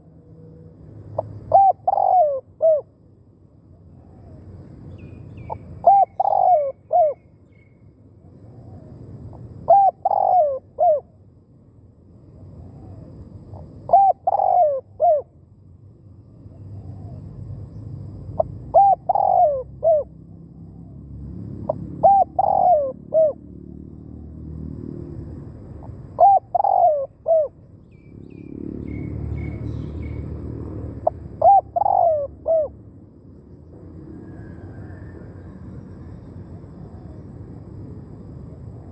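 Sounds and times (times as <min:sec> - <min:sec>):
dove cooing: 0:01.1 - 0:02.9, 0:05.5 - 0:07.2, 0:09.7 - 0:11.1, 0:12.6 - 0:15.3, 0:18.4 - 0:20.2, 0:21.7 - 0:23.4, 0:26.2 - 0:27.6, 0:31.0 - 0:32.8
faint high bird chirps: 0:27.8 - 0:30.4.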